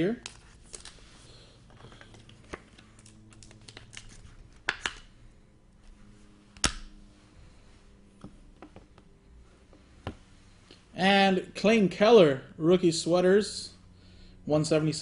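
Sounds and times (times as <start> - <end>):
trading cards rustling: 0.2 - 5.1.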